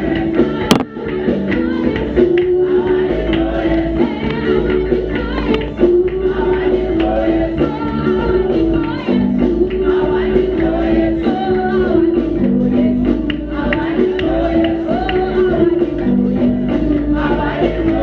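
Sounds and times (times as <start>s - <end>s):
keyboard and bass notes: 0.0s - 18.0s
voices singing gospel song: 0.0s - 18.0s.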